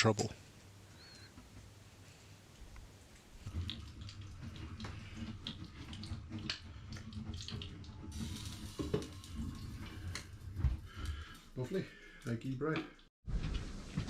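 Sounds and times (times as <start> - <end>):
bread sizzling in a pan: 8.1 - 11.2.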